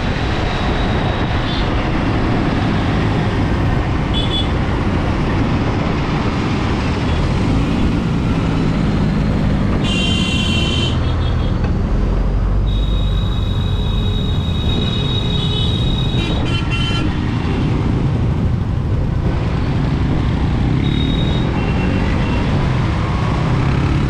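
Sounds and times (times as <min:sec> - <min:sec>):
wind and road noise: 0:00.0 - 0:24.0
horn honk: 0:09.8 - 0:11.5, 0:12.7 - 0:17.1
short high beep: 0:12.7 - 0:14.9.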